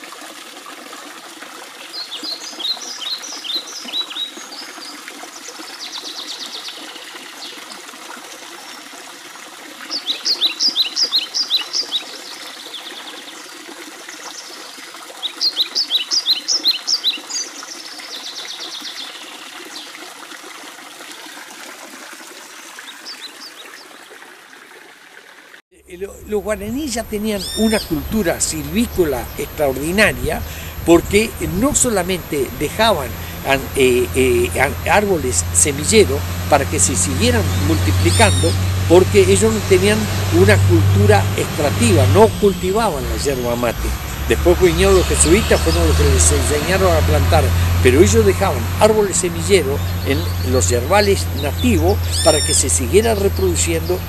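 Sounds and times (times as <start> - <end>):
running water trickling: 0.0 - 54.0
songbird chirping with buzzy trills: 26.0 - 54.0.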